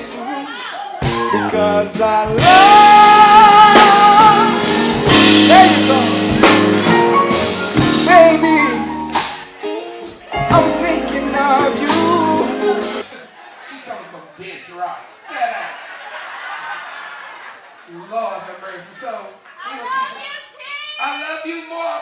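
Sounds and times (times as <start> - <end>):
live band playing: 0.0 - 13.2.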